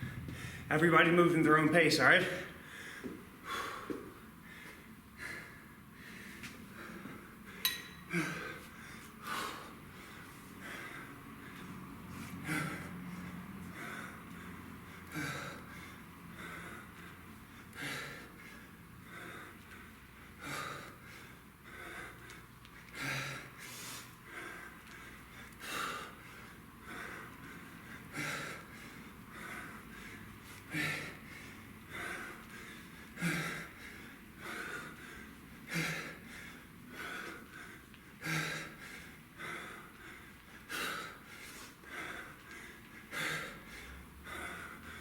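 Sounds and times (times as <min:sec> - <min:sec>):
man breathing hard: 0:00.0 - 0:45.0
metallic clink: 0:07.6 - 0:08.1.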